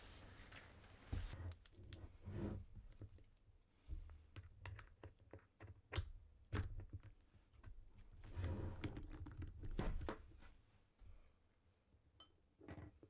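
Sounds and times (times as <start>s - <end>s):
rustling and scraping: 0.0s - 1.4s.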